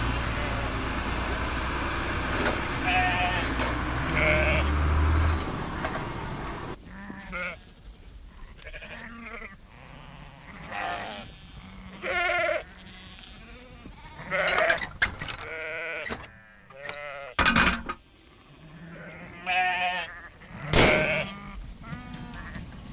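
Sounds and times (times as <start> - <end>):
sheep bleating: 2.8 - 4.8, 6.8 - 17.4, 18.2 - 22.8.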